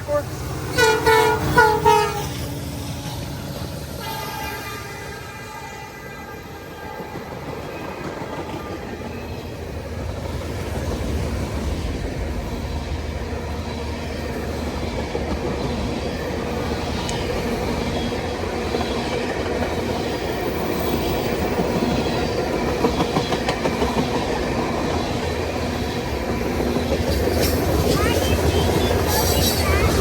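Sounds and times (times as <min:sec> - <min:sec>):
freight train rumbling: 0:00.0 - 0:30.0
wheels clicking over rails: 0:14.7 - 0:30.0.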